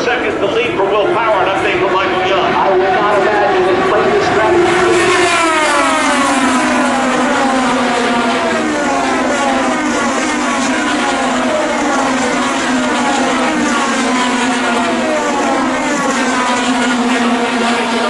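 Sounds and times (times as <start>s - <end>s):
race cars passing at full throttle: 0.0s - 18.0s.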